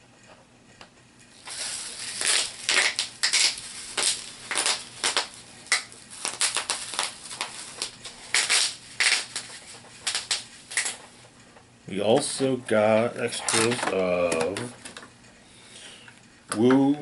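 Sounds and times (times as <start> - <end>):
plastic packaging crinkling: 1.3 - 11.2, 12.2 - 15.0.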